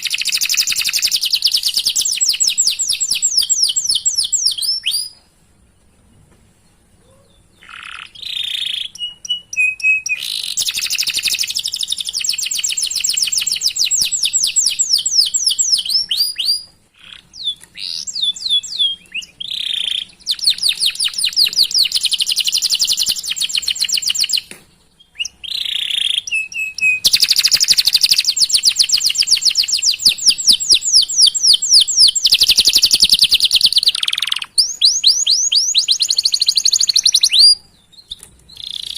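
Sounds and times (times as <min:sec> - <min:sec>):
canary singing trills: 0:00.0 - 0:05.2, 0:06.0 - 0:38.9.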